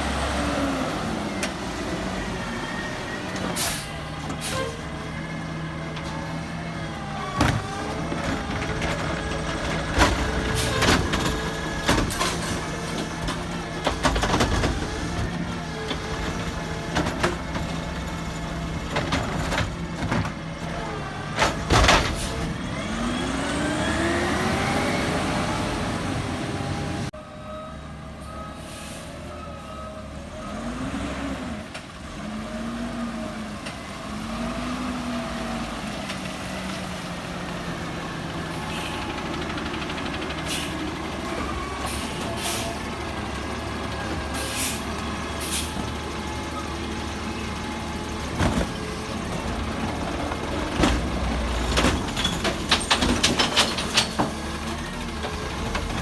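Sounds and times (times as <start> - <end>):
garbage truck engine running: 0.0 - 28.2, 31.8 - 56.0
engine revving with whine: 22.6 - 27.1
clanks and bangs of equipment: 51.7 - 54.5.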